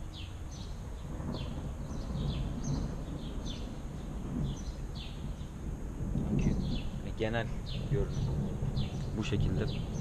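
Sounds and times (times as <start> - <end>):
small bird chirping: 0.0 - 5.6, 6.2 - 10.0
steady low rumble: 0.0 - 10.0.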